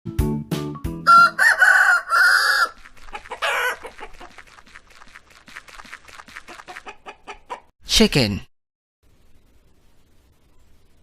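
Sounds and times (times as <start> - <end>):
rooster crowing: 1.0 - 2.8, 3.4 - 3.9
chicken squawk: 1.1 - 4.4, 6.5 - 7.7.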